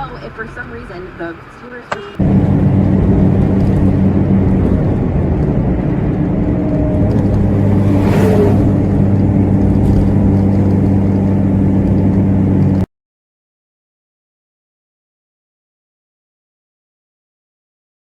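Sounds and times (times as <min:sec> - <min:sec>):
road noise: 0:00.0 - 0:12.9
vehicle engine hum: 0:00.0 - 0:12.9
brief rushing swell: 0:07.2 - 0:09.4.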